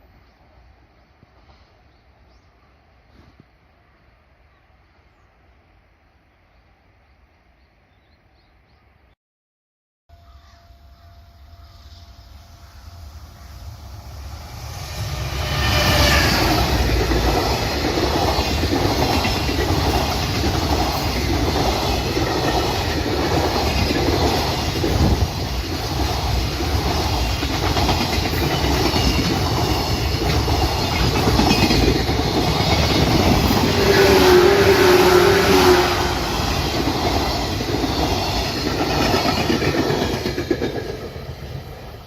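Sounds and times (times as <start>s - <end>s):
freight train passing: 10.6s - 42.0s
clickety-clack of train wheels: 15.4s - 42.0s.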